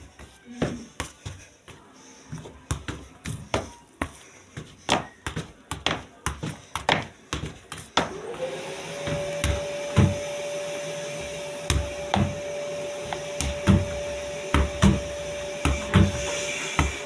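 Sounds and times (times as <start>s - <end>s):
vacuum cleaner motor whine: 8.1s - 17.0s
dull thumps: 13.1s - 17.0s.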